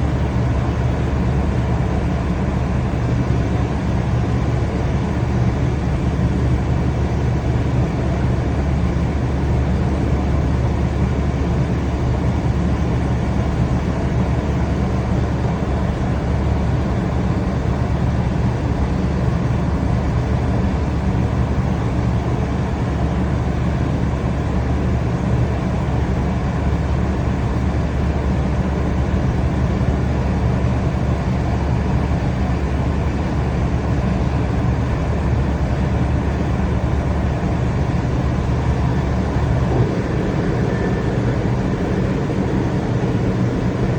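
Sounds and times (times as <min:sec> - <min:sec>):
train rumbling: 0:37.0 - 0:43.9.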